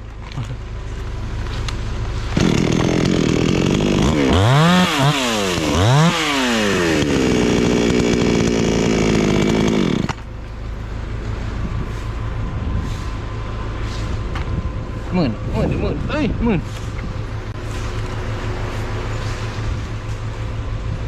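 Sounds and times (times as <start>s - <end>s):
low engine rumble: 0.0s - 5.8s, 7.0s - 21.0s
chainsaw revving: 2.3s - 10.2s.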